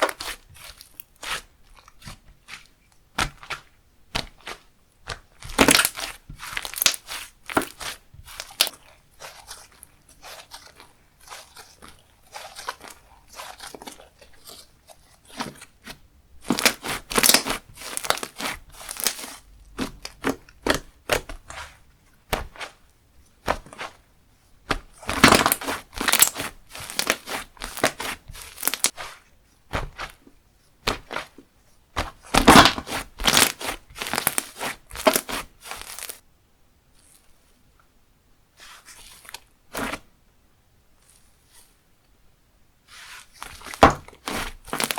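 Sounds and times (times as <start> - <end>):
slime squished by hand: 0.0 - 22.8, 24.6 - 30.2, 32.0 - 36.2, 42.9 - 44.9.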